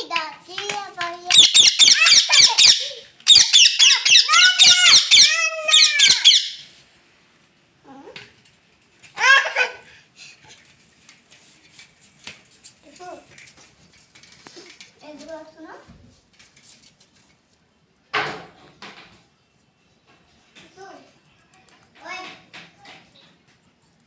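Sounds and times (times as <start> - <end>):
parrot screeching: 1.3 - 6.7.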